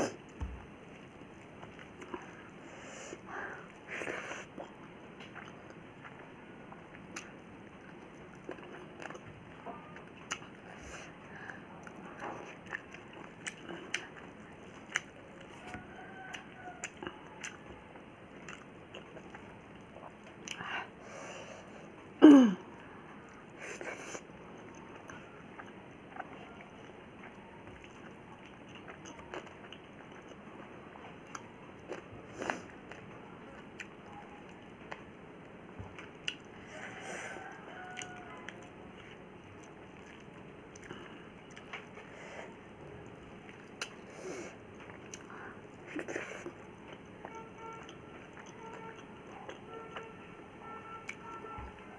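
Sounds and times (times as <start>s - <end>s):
chewing clicks and mouth smacks: 4.4s - 9.4s, 10.0s - 10.6s, 11.8s - 20.7s, 24.5s - 35.1s, 35.8s - 36.5s, 38.0s - 42.0s, 43.3s - 44.0s, 44.8s - 50.1s.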